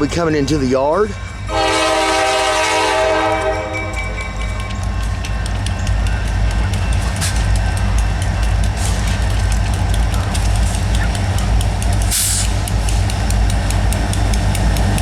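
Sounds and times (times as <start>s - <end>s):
diesel locomotive drone: 0.0s - 15.0s
air hiss: 12.1s - 13.1s.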